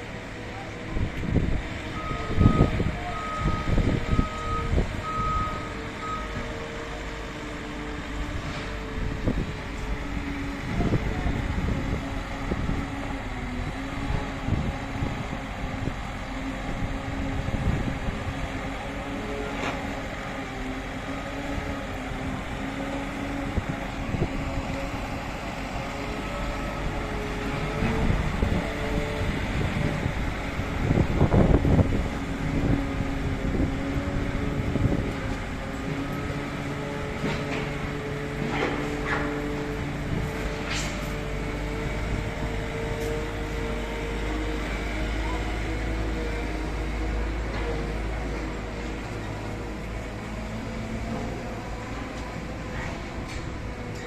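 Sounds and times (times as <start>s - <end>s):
wind rumble on microphone: 0.8s - 5.5s, 8.2s - 19.1s, 21.3s - 44.8s
reversing alarm beeping: 1.9s - 6.6s.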